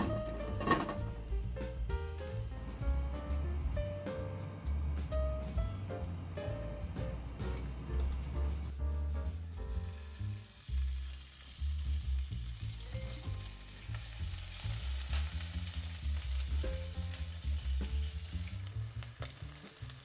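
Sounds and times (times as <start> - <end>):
food sizzling in a frying pan: 9.4 - 20.0.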